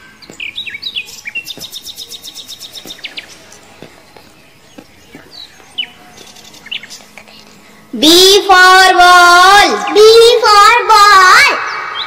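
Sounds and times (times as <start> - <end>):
small bird chirping and trilling: 0.0 - 7.7.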